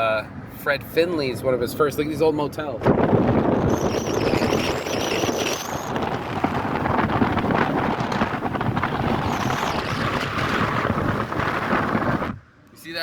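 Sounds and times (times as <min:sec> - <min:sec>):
car wind and road noise: 0:00.0 - 0:13.0
wind buffeting microphone: 0:02.7 - 0:12.5.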